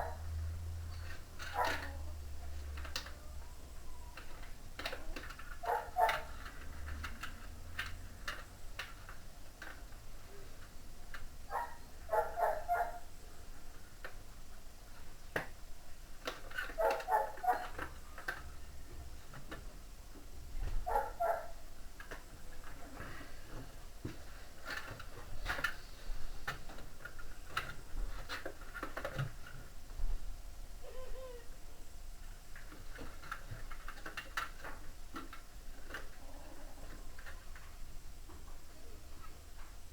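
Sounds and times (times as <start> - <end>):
dog barking: 0.0 - 0.2, 1.5 - 1.9, 5.6 - 6.3, 11.5 - 13.0, 16.8 - 17.7, 20.9 - 21.6.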